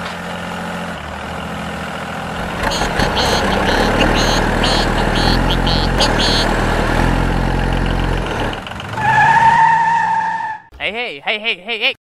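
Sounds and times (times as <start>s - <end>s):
tractor engine idling: 0.2s - 8.9s
high-pitched tone: 2.6s - 6.9s.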